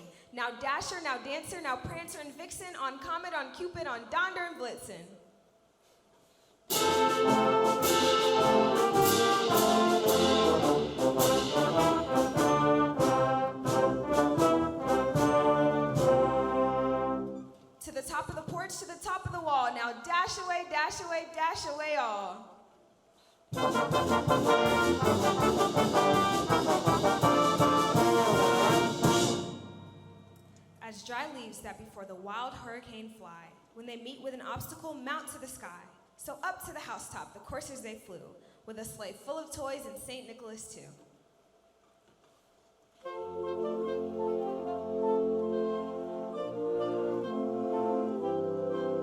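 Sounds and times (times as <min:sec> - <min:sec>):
percussion beat: 0:06.7 - 0:16.4, 0:23.5 - 0:30.8
school brass band playing: 0:06.7 - 0:17.5, 0:23.6 - 0:30.2, 0:43.1 - 0:49.0.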